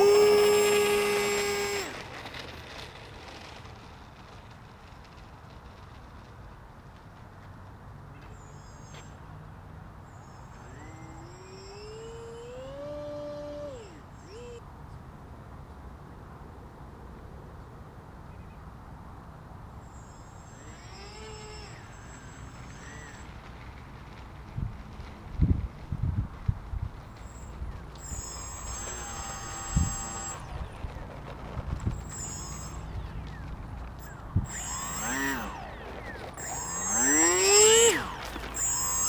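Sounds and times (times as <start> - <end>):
rc airplane motor whining: 0.0 - 3.8, 10.1 - 14.6, 19.9 - 39.0.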